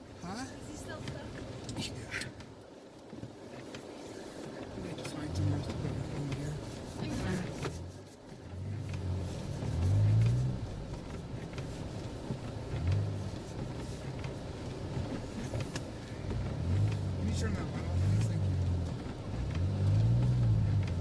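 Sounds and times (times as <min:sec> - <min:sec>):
vehicle engine revving: 0:04.9 - 0:21.0.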